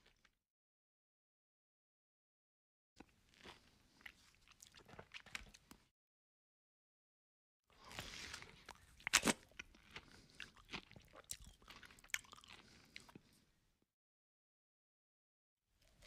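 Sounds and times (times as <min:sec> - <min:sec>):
chewing and crunching food: 0:00.0 - 0:00.4, 0:03.0 - 0:05.9, 0:07.7 - 0:13.5.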